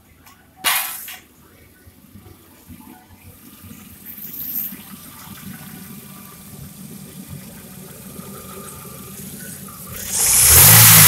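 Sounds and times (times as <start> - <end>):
car engine idling: 5.9 - 11.0.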